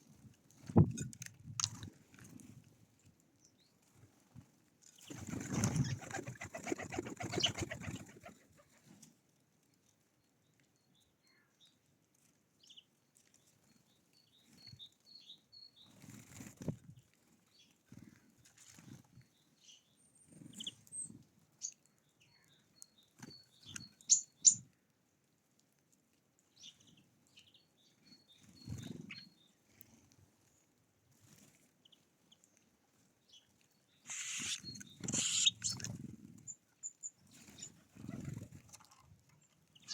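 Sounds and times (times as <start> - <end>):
birds' wings flapping: 5.1 - 8.6
short high chirps: 34.1 - 35.8.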